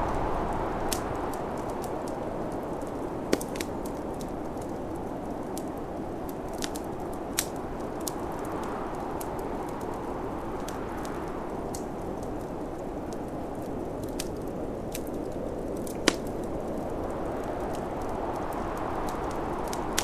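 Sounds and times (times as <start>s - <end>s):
rushing wind of snowstorm: 0.0s - 20.0s
wood fire crackling and popping: 0.0s - 20.0s.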